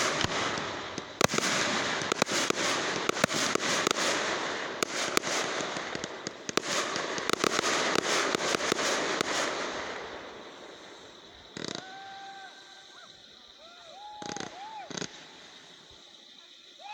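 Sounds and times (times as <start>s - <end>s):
fireworks crackling and banging: 0.0s - 16.4s.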